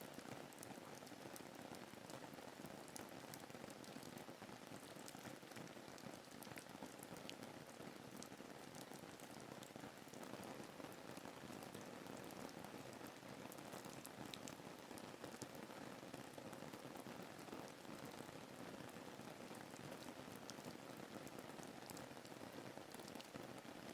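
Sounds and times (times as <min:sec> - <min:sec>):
soft rainfall: 0:00.0 - 0:23.9.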